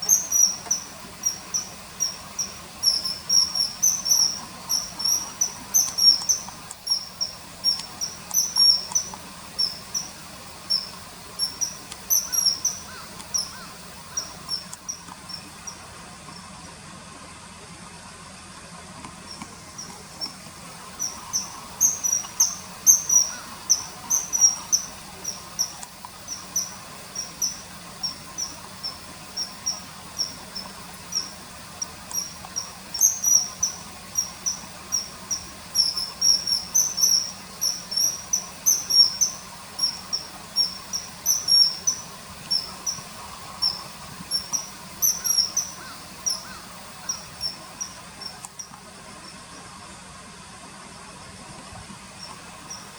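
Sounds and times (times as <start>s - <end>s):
kingfisher shrill whistled calls: 0.0s - 15.0s, 20.9s - 47.9s.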